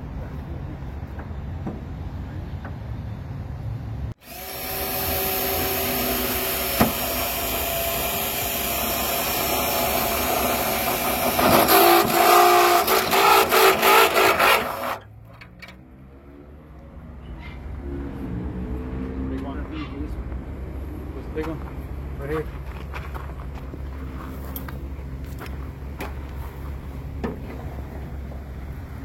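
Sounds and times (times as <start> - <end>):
handheld power tool running: 4.2 - 15.0.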